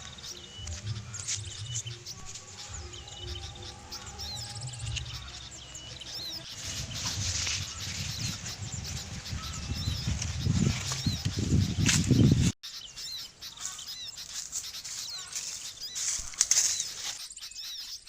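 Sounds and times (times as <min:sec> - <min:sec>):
low rumbling noise: 0:00.0 - 0:12.6
small birds chirping: 0:00.0 - 0:18.0.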